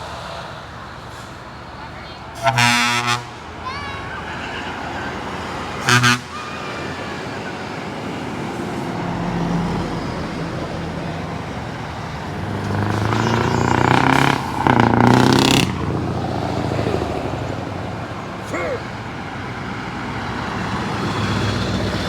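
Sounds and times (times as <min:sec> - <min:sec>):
truck engines running: 0:00.0 - 0:22.0
truck passing: 0:00.0 - 0:22.0
short horn toot: 0:02.4 - 0:03.4, 0:05.8 - 0:06.5
loud truck horn blasts: 0:02.4 - 0:03.6, 0:05.4 - 0:07.3, 0:12.6 - 0:15.8.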